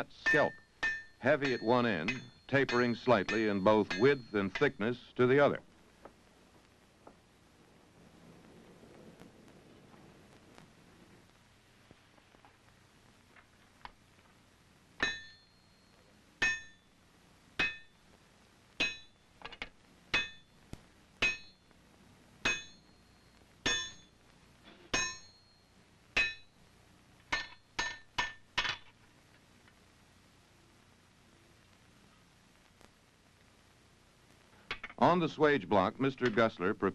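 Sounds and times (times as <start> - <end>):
hammer striking iron on anvil: 0.2 - 4.8, 15.0 - 15.4, 16.4 - 16.8, 17.6 - 17.9, 18.8 - 19.1, 20.1 - 20.5, 21.2 - 21.6, 22.4 - 22.9, 23.6 - 24.1, 24.9 - 25.4, 26.2 - 26.5, 27.3 - 28.8.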